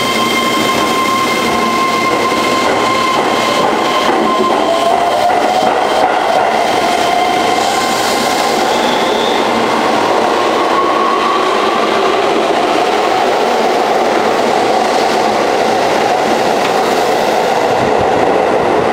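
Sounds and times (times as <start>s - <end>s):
train wheels rumbling on rail: 0.0s - 18.9s.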